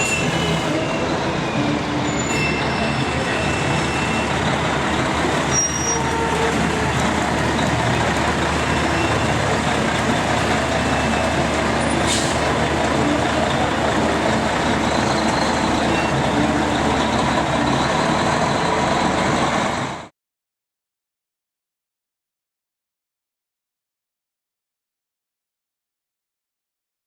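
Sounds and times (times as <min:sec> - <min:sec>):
heavy truck engine running: 0:00.0 - 0:20.1.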